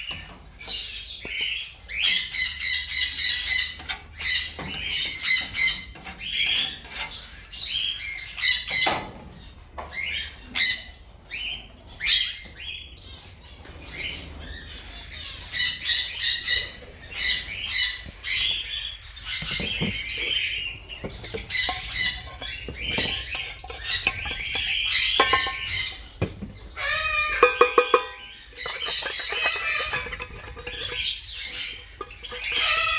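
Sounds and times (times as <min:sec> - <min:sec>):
parrots squawking: 0:15.2 - 0:32.9.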